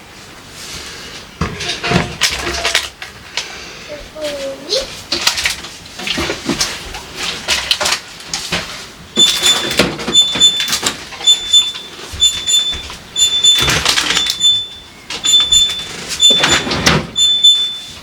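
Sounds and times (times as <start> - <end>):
food containers clattering: 1.4 - 3.3, 4.9 - 17.2
refrigerator alarm beeping: 9.2 - 18.0
fridge drawers sliding: 12.3 - 18.0.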